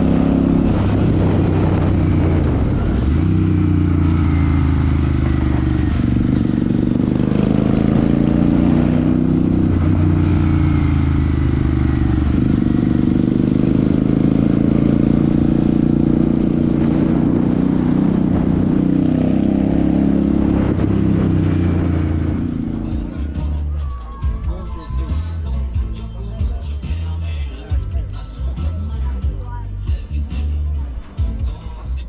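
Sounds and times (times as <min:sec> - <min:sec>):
motorcycle engine revving: 0:00.0 - 0:23.6.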